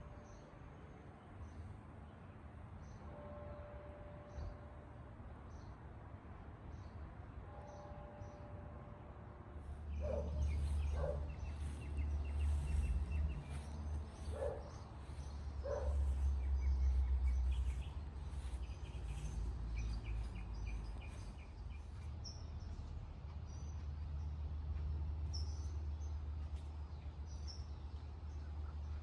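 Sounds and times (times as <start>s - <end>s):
small birds chirping: 9.9s - 22.6s.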